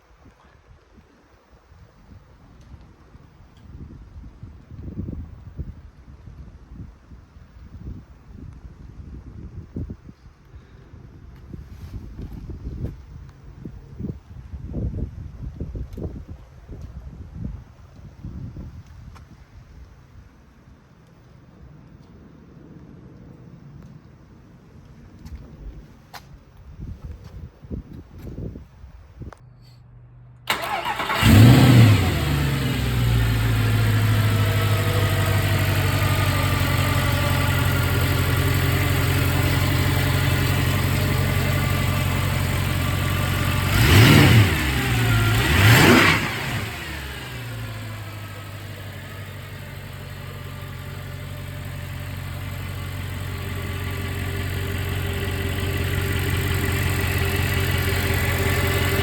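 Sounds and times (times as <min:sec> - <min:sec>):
car engine starting and idling: 0:30.5 - 0:59.0
engine throttle blips: 0:30.5 - 0:59.0.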